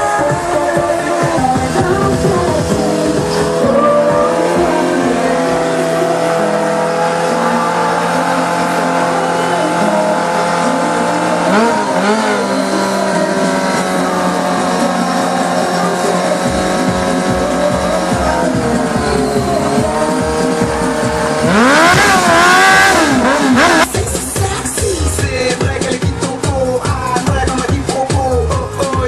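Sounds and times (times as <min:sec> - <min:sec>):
motorcycle engine at high revs: 0:00.0 - 0:29.0.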